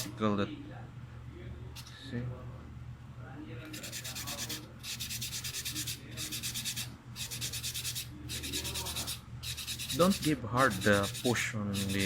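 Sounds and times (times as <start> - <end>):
steady low hum: 0.0 - 12.0
sandpaper scratching metal: 3.7 - 12.0.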